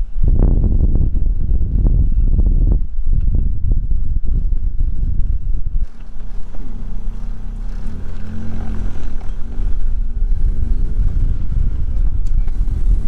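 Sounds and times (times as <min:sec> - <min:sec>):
heavy low rumble: 0:00.0 - 0:13.0
car engine revving: 0:05.8 - 0:13.0.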